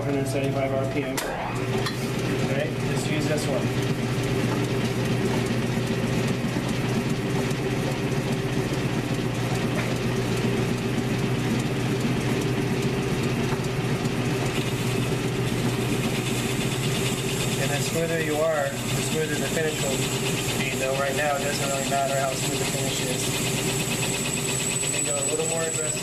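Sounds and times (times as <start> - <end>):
lathe whirring and humming: 0.0 - 26.0.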